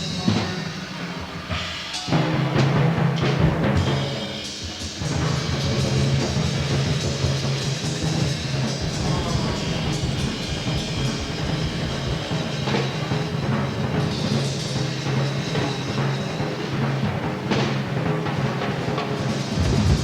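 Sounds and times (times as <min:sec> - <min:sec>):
heavy drumming: 0:00.0 - 0:20.0
sustained low bass note: 0:08.8 - 0:12.3, 0:19.6 - 0:20.0.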